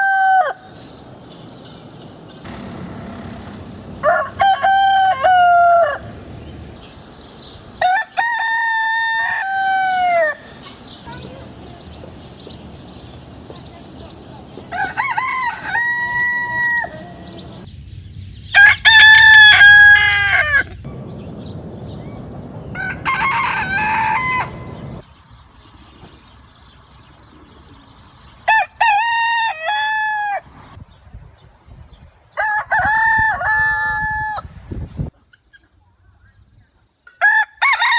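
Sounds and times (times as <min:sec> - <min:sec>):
rooster crowing: 0:00.0 - 0:00.7, 0:02.5 - 0:06.5, 0:07.8 - 0:10.5, 0:14.6 - 0:17.7, 0:18.6 - 0:20.8, 0:22.6 - 0:25.0, 0:28.5 - 0:30.5, 0:37.2 - 0:37.9.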